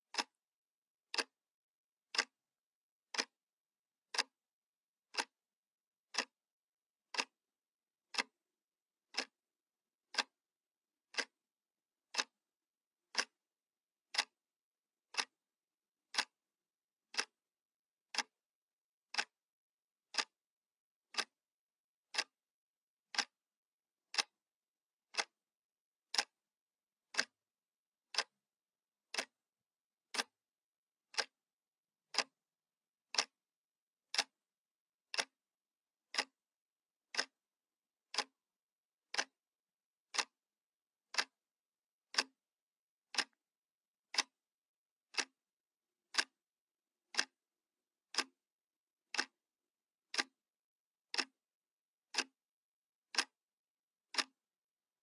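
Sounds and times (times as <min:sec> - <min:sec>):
clock ticking: 0:03.1 - 0:03.3, 0:05.1 - 0:05.3, 0:06.1 - 0:06.3, 0:07.1 - 0:07.3, 0:09.1 - 0:09.3, 0:10.1 - 0:10.3, 0:11.1 - 0:11.3, 0:13.1 - 0:13.4, 0:15.1 - 0:15.4, 0:17.1 - 0:17.4, 0:19.1 - 0:19.3, 0:20.1 - 0:20.3, 0:21.1 - 0:21.3, 0:22.1 - 0:22.3, 0:24.1 - 0:24.4, 0:25.1 - 0:25.4, 0:26.1 - 0:26.4, 0:27.1 - 0:27.4, 0:28.1 - 0:28.4, 0:29.1 - 0:29.4, 0:31.1 - 0:31.4, 0:32.1 - 0:32.4, 0:33.1 - 0:33.4, 0:34.1 - 0:34.4, 0:35.1 - 0:35.4, 0:36.1 - 0:36.4, 0:37.1 - 0:37.4, 0:38.1 - 0:38.4, 0:39.1 - 0:39.4, 0:40.1 - 0:40.4, 0:41.1 - 0:41.4, 0:42.1 - 0:42.4, 0:43.1 - 0:43.4, 0:44.1 - 0:44.4, 0:45.1 - 0:45.4, 0:46.1 - 0:46.4, 0:49.1 - 0:49.4, 0:51.1 - 0:51.4, 0:54.2 - 0:54.4.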